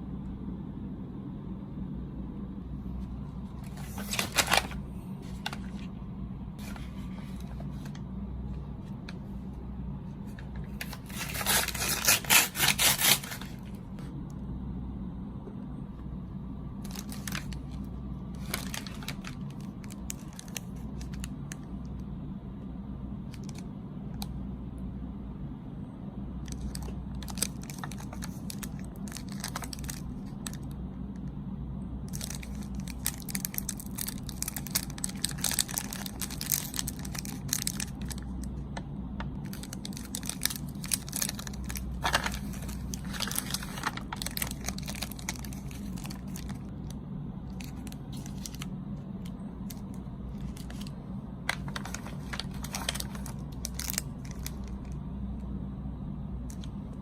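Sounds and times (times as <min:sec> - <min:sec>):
steady low hum: 0:00.0 - 0:57.0
plastic packaging crinkling and tearing: 0:03.6 - 0:05.9, 0:10.2 - 0:13.8, 0:16.8 - 0:21.7, 0:23.3 - 0:24.3, 0:26.4 - 0:30.7, 0:32.1 - 0:38.5, 0:39.3 - 0:55.0, 0:56.5 - 0:56.8.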